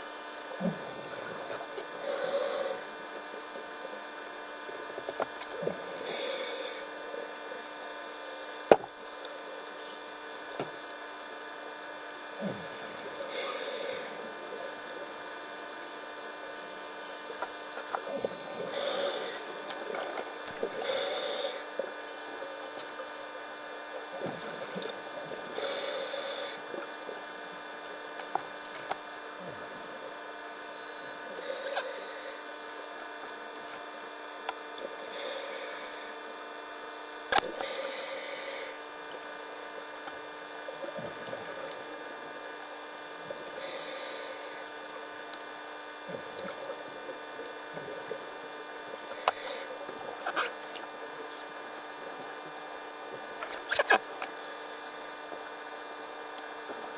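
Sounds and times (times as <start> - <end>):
steady hum: 0.0 - 56.9
diver breathing through regulator: 2.0 - 2.9, 5.7 - 7.0, 12.4 - 14.3, 18.7 - 21.7, 25.5 - 26.8, 31.4 - 32.5, 35.0 - 36.2, 37.6 - 38.9, 43.6 - 44.7, 49.1 - 49.8.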